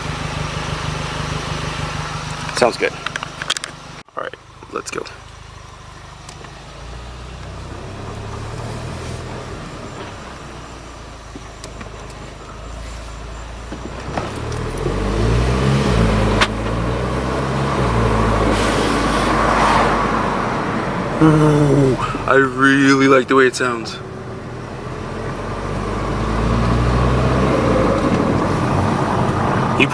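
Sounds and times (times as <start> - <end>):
car engine accelerating with growl: 4.5 - 29.9.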